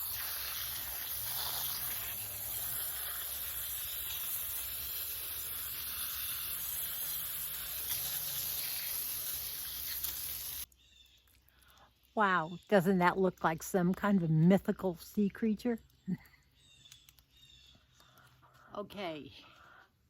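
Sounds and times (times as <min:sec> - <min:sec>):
garden hose spraying water: 0:00.0 - 0:16.0.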